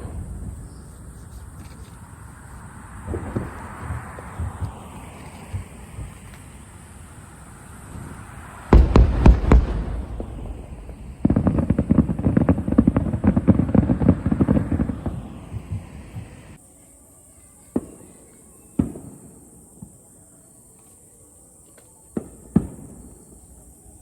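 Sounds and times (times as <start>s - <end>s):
fireworks bangs: 0.0s - 16.6s
fireworks booming: 0.0s - 16.6s
fireworks crackling pops: 0.0s - 16.6s, 17.6s - 20.1s, 20.7s - 23.8s.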